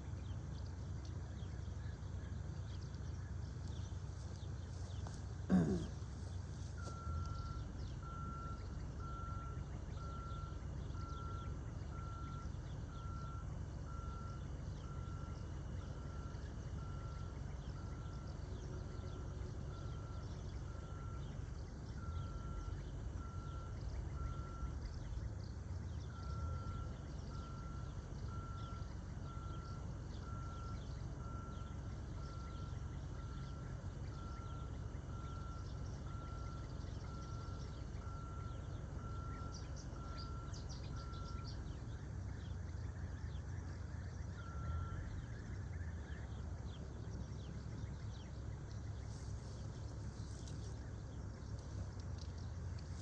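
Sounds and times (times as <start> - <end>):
reversing alarm beeping: 6.8 - 25.4, 26.0 - 46.3.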